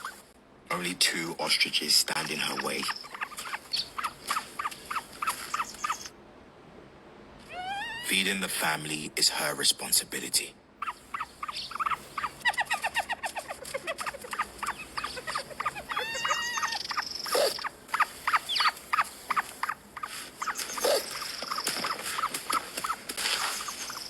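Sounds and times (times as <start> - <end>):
animals chirping: 0.0 - 0.3, 1.4 - 6.1, 7.4 - 8.2, 10.8 - 24.0
longer pitched call: 7.5 - 8.3, 13.9 - 18.7.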